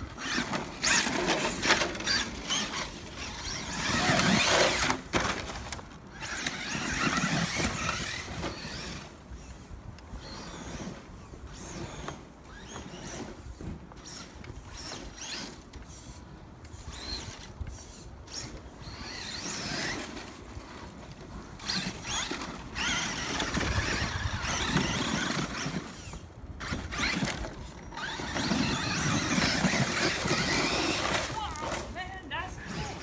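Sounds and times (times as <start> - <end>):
tyres in dirt: 0.0 - 33.0
electric motor whining: 6.1 - 9.6, 21.5 - 33.0.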